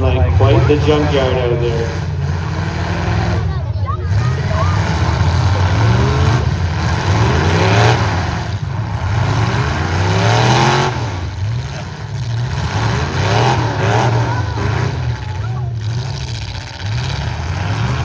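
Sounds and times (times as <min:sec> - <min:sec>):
truck engines revving: 0:00.0 - 0:18.0.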